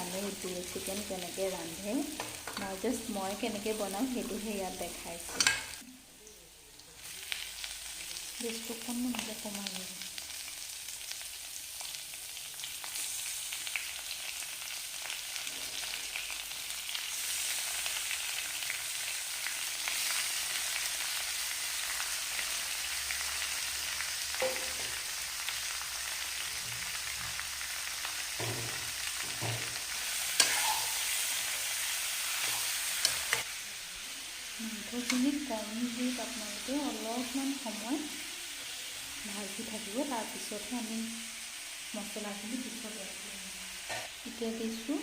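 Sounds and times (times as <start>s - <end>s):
food sizzling in oil: 0.0s - 45.0s
spoon knocking against pan: 24.4s - 25.0s.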